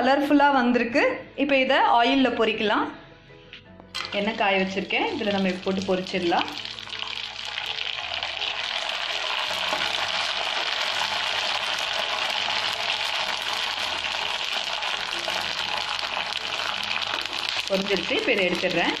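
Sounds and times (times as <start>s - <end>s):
food sizzling in hot oil: 4.0s - 19.0s.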